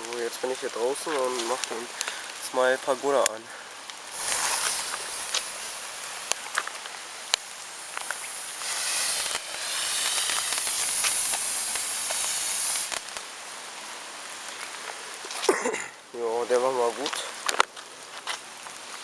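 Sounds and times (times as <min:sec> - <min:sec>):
firework crackles: 0:00.0 - 0:15.6
firework hiss of sparks: 0:01.1 - 0:13.7.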